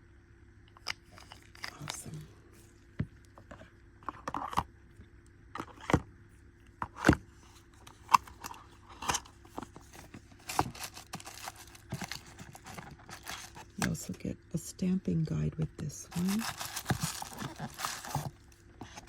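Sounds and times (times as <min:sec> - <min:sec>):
plastic crinkling: 0:09.8 - 0:13.9, 0:16.1 - 0:19.0.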